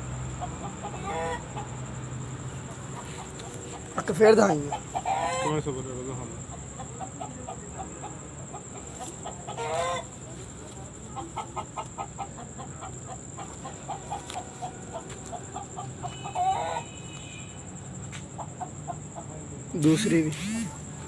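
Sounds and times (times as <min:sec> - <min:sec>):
chickens clucking: 0:00.0 - 0:17.0, 0:17.7 - 0:20.8
chicken squawking: 0:00.4 - 0:01.8, 0:02.7 - 0:05.7, 0:06.7 - 0:10.2, 0:11.1 - 0:16.9.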